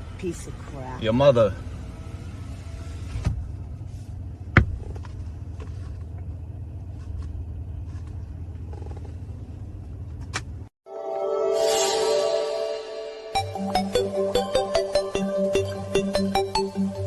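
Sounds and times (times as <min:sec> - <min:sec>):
car rumbling: 0:00.0 - 0:10.7.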